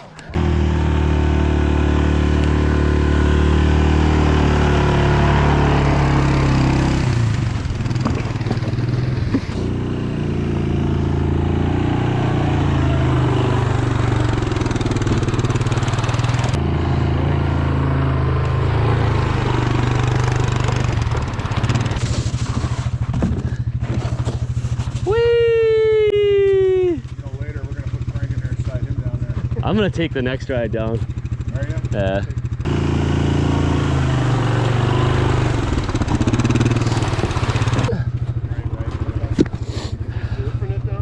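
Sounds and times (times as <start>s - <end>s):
small engine running: 0.0s - 25.1s, 26.4s - 41.0s.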